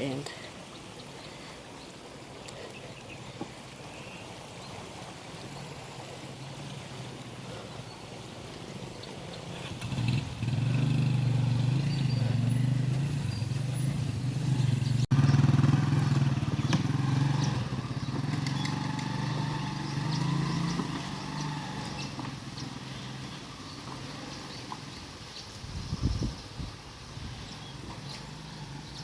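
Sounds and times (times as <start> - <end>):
motorcycle engine running: 9.4 - 23.3.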